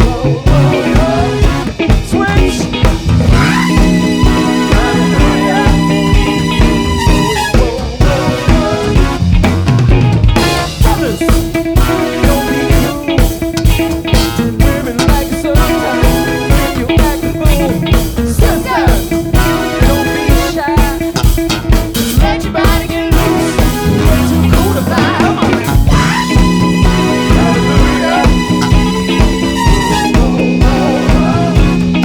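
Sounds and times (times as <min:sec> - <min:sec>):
bass guitar: 0:00.0 - 0:32.0
drum kit beat: 0:00.0 - 0:32.0
guitar: 0:00.0 - 0:32.0.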